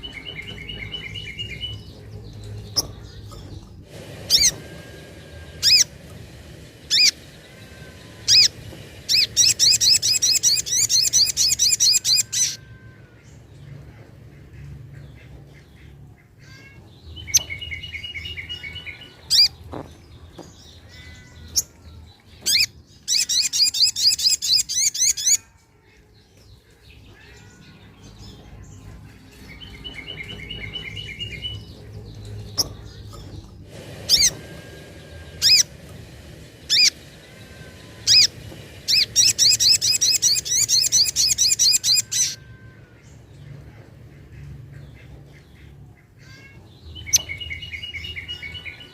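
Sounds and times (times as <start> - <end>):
bird calling chips and trills: 0.0 - 15.6, 26.7 - 43.2.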